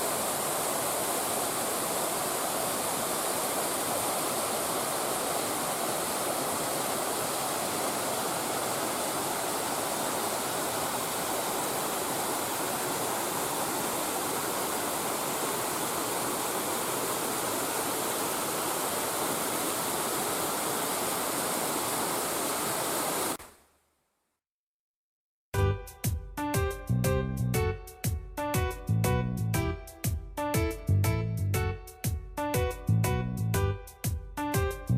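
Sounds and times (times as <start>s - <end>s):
water rushing over rocks: 0.0s - 23.4s.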